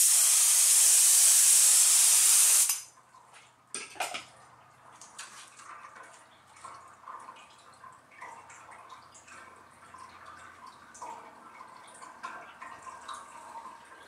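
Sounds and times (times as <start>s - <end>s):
spray hissing: 0.0s - 2.7s
water dripping: 2.7s - 14.0s.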